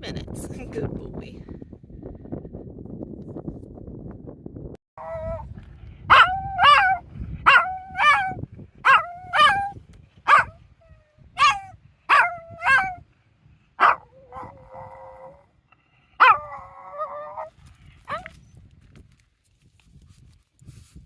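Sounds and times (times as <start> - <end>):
dog yowling barks: 5.0 - 5.5, 6.1 - 10.6, 11.4 - 13.0, 13.8 - 15.4, 16.2 - 17.5, 18.1 - 18.3.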